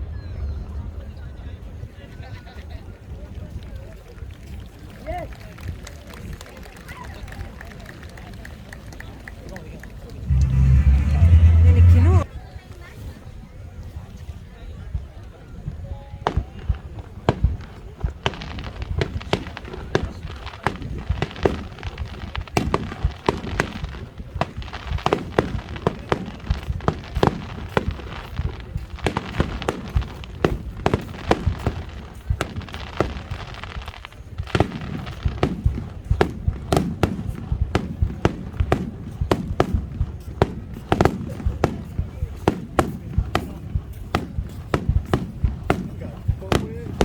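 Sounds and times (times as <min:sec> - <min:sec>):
low rumble: 0:10.3 - 0:12.3.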